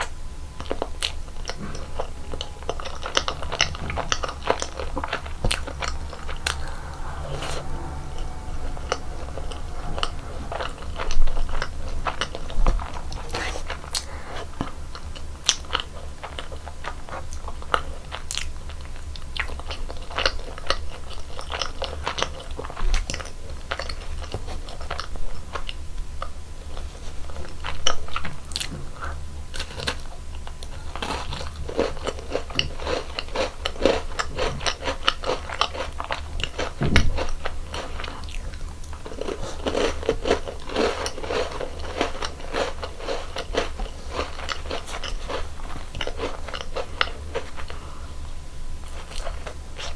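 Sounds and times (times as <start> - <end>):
steady low hum: 0.0 - 17.4.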